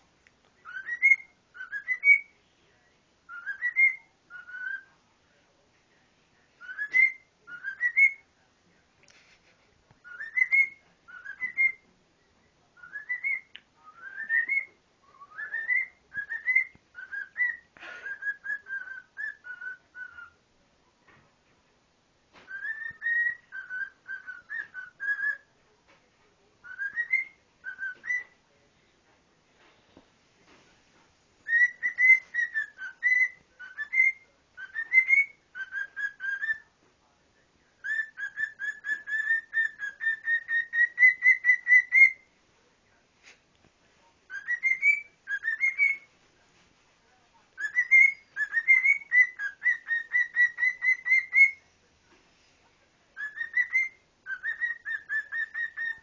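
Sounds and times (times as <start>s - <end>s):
cockatiel whistling a tune: 0.6s - 2.3s, 3.3s - 4.9s, 6.6s - 8.2s, 10.0s - 11.9s, 12.8s - 20.4s, 22.5s - 25.5s, 26.6s - 28.4s, 31.4s - 36.7s, 37.8s - 42.3s, 44.3s - 46.1s, 47.6s - 51.6s, 53.2s - 56.0s.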